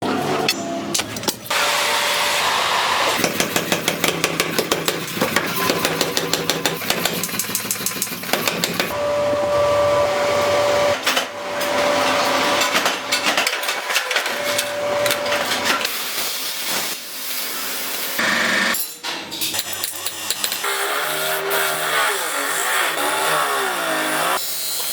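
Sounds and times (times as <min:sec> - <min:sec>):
hammer strikes on steel: 0:03.2 - 0:09.0
machine running with whine: 0:08.9 - 0:13.2.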